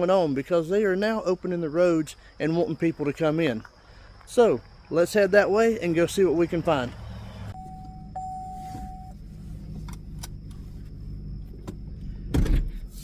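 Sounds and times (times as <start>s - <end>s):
car engine idling: 6.3s - 12.4s
electronic beep: 7.5s - 9.2s
thump: 11.6s - 12.8s.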